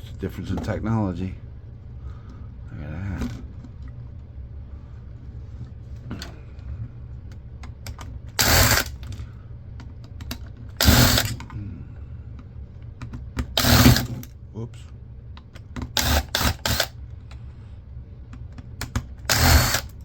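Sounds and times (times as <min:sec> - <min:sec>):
steady low hum: 0:00.0 - 0:20.0
loud bursts of mechanical noise: 0:08.4 - 0:09.1, 0:10.8 - 0:11.5, 0:13.4 - 0:14.3, 0:15.9 - 0:17.0, 0:19.2 - 0:20.0.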